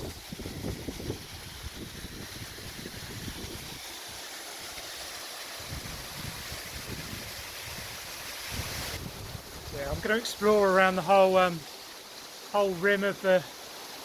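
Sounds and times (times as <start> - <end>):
wind buffeting microphone: 0.0 - 3.8, 5.6 - 10.0
waterfall rushing hiss: 0.0 - 14.0.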